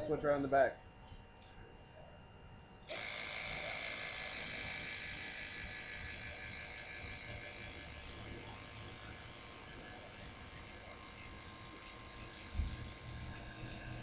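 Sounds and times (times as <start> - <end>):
electric air pump buzzing: 2.8 - 14.0.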